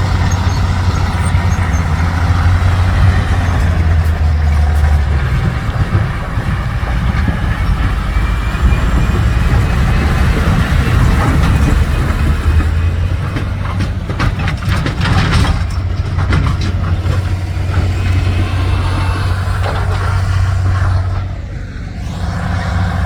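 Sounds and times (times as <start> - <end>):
metallic clanks and rattles: 0.0 - 18.4
diesel truck engine running: 0.0 - 23.0.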